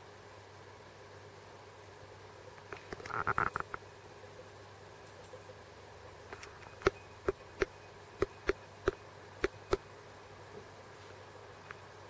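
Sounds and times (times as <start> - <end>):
woodpecker pecking: 6.4 - 9.8.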